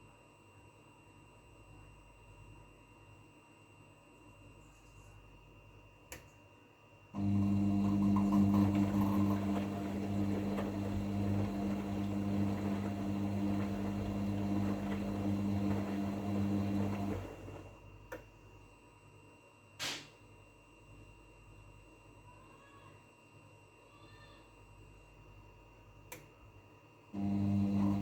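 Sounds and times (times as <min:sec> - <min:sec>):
washing machine humming: 0:07.2 - 0:18.4, 0:26.0 - 0:28.0.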